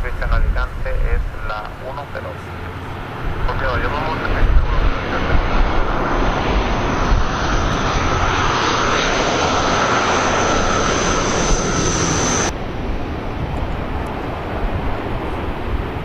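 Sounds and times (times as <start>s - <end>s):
faint high whine: 0.0s - 12.6s
aircraft engines running: 0.0s - 16.0s.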